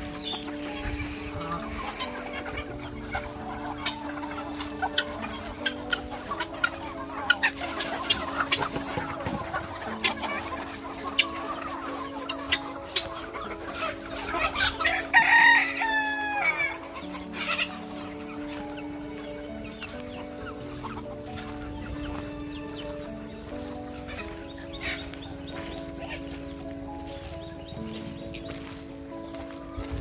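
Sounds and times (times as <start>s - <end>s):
chickens clucking: 0.0s - 30.0s
rooster crowing: 14.8s - 16.6s.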